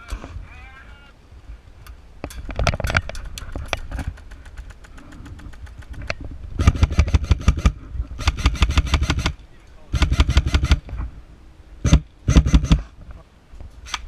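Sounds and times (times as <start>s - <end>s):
airsoft guns firing: 6.6s - 10.8s, 11.8s - 12.8s.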